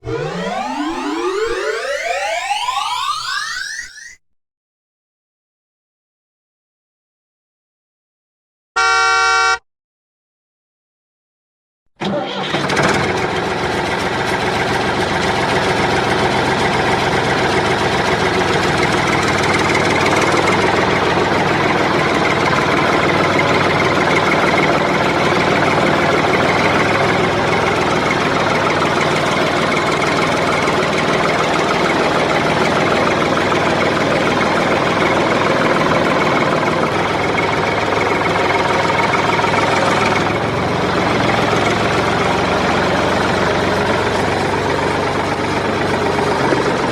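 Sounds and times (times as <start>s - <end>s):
tractor engine running: 12.0s - 46.9s.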